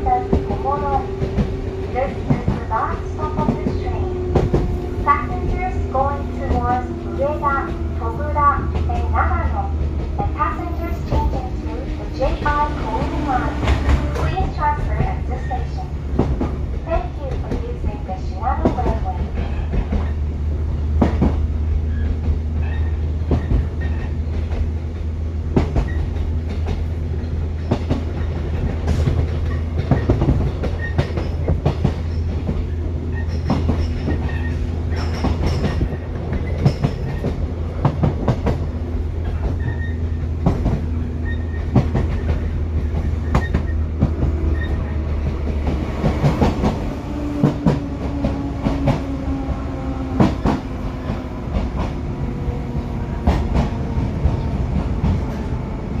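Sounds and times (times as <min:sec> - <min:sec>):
low train running hum: 0:00.0 - 0:56.0
wheels clacking over rail joints: 0:20.9 - 0:55.5.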